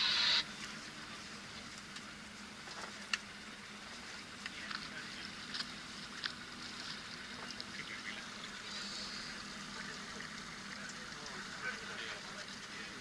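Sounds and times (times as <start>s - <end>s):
boat engine hum: 0.0s - 13.0s
light ticks or splashes: 1.6s - 13.0s
water hissing along hull: 8.5s - 10.7s.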